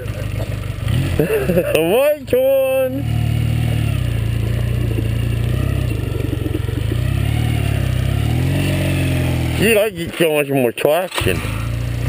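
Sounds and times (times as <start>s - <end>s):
motorcycle engine revving: 0.0s - 12.0s
wheel spinning in snow: 3.9s - 9.0s.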